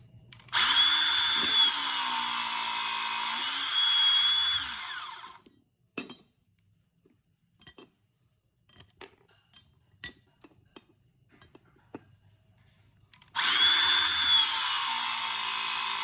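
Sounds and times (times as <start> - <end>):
cutter motor whining: 0.5 - 5.4, 13.4 - 16.0.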